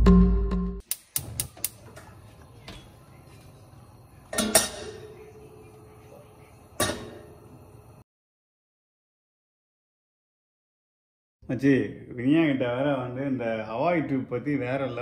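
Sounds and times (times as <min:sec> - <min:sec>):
music: 0:00.0 - 0:00.8
utensils clattering: 0:04.3 - 0:05.4, 0:06.8 - 0:07.3.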